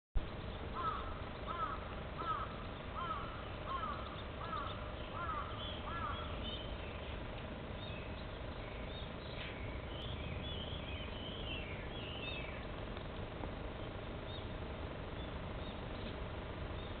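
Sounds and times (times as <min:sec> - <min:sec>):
low outdoor rumble: 0:00.2 - 0:17.0
small birds chirping: 0:00.2 - 0:17.0
bird calling arching notes: 0:00.3 - 0:07.2, 0:07.8 - 0:12.8.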